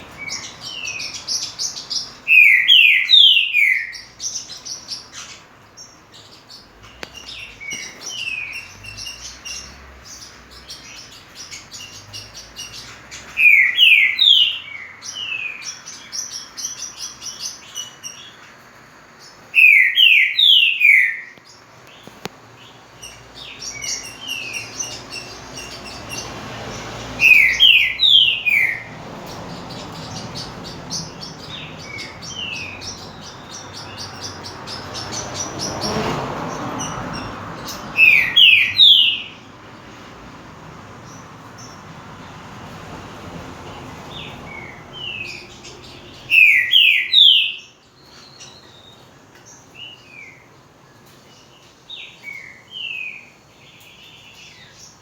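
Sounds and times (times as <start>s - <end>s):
rapid high bird chirping: 0.0s - 39.5s, 44.0s - 50.5s
bird whistling phrases: 2.3s - 4.1s, 13.4s - 14.9s, 19.6s - 21.4s, 27.2s - 28.9s, 46.3s - 47.6s.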